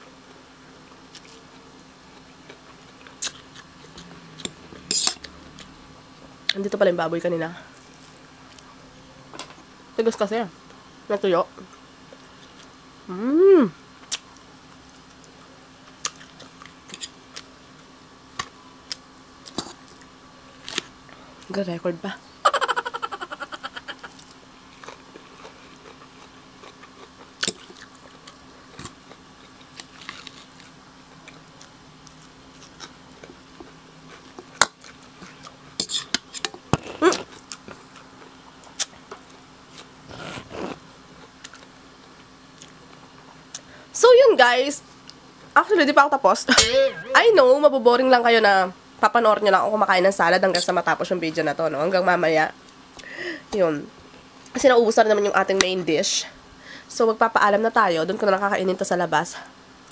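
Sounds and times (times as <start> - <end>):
faint steady hum: 0.0 - 59.9
lettuce crunching while chewed: 24.1 - 33.4, 39.7 - 43.6.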